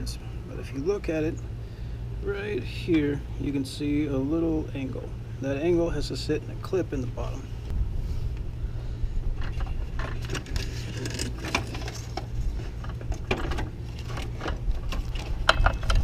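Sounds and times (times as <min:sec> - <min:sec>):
low hum: 0:00.0 - 0:16.0
clicks and knocks of handling: 0:09.4 - 0:16.0.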